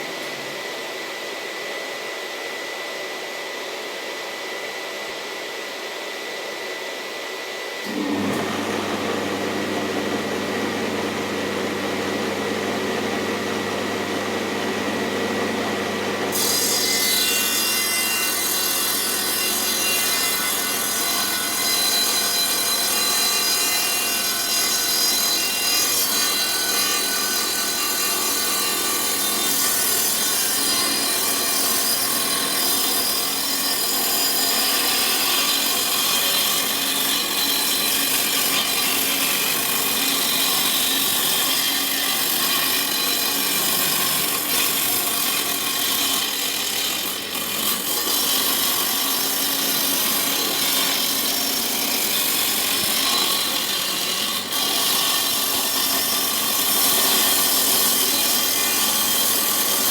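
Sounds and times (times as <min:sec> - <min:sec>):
saw blade cutting wood: 0:07.8 - 0:59.9
table saw motor hum: 0:07.8 - 0:59.9.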